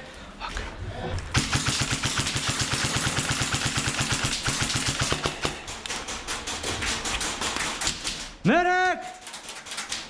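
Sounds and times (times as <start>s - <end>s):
airsoft gun firing: 1.3s - 8.2s.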